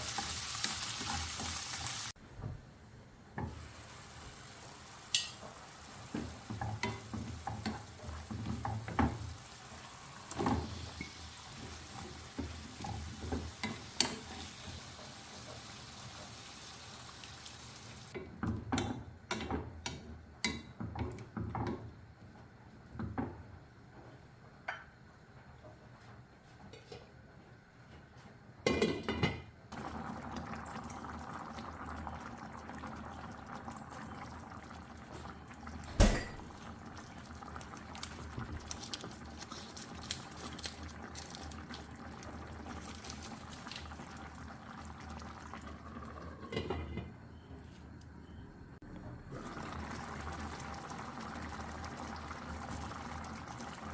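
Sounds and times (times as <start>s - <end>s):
food sizzling in a pan: 0.0s - 2.2s, 3.5s - 18.2s, 29.8s - 46.4s
utensil stirring and knocking pan: 5.1s - 9.4s, 10.3s - 16.4s
kitchenware knocks: 36.0s - 36.5s.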